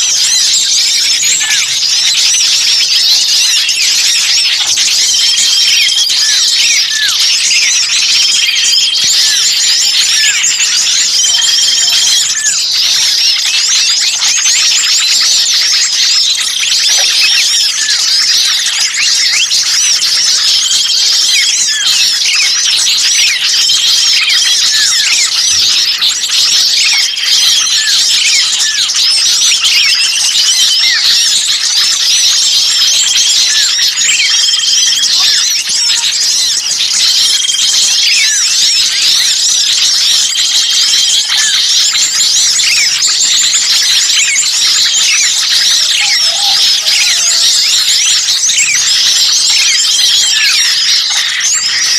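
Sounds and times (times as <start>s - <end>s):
small songbirds chattering: 0.0s - 51.9s
held whistled bird note: 38.0s - 48.9s.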